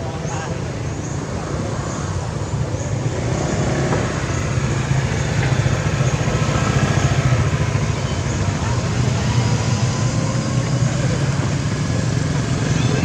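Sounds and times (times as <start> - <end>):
vehicle engine low rumble: 0.0 - 13.0.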